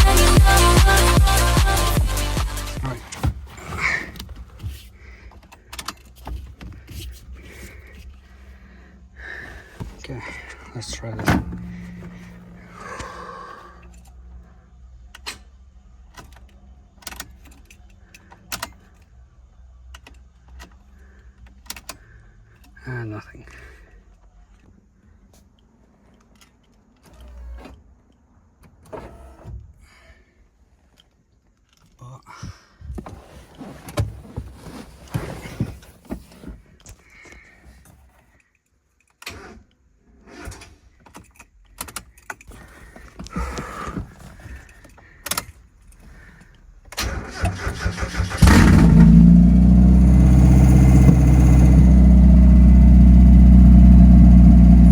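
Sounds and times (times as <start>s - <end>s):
starter cranking: 10.0s - 14.1s, 47.0s - 54.9s
car engine running loudly: 10.8s - 13.3s, 48.4s - 54.9s.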